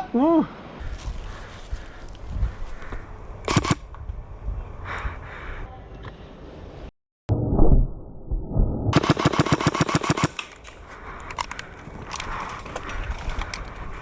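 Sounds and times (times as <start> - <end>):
airsoft gun full-auto burst: 3.5 - 3.8, 9.0 - 10.4.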